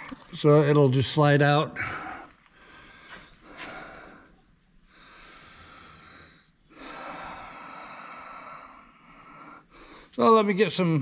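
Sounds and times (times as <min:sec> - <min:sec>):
man breathing heavily: 0:01.8 - 0:10.2.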